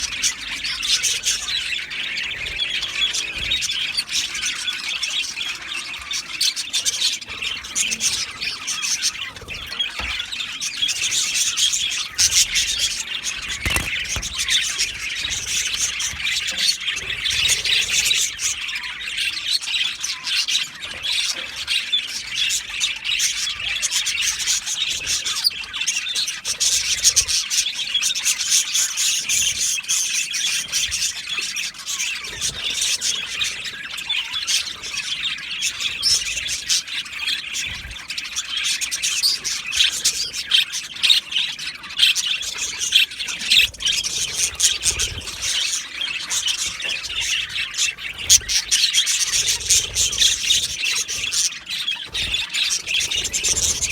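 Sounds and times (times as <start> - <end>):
budgerigars chattering: 0.0 - 53.9.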